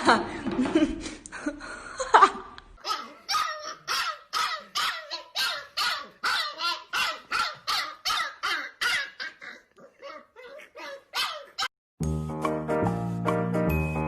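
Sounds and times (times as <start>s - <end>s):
dog barking: 2.8s - 9.4s, 10.8s - 11.7s.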